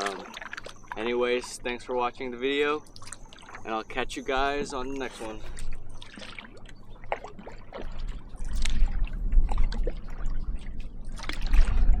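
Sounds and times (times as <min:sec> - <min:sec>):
paddle splashing in water: 0:00.0 - 0:01.8, 0:03.0 - 0:12.0
wind buffeting microphone: 0:07.9 - 0:12.0.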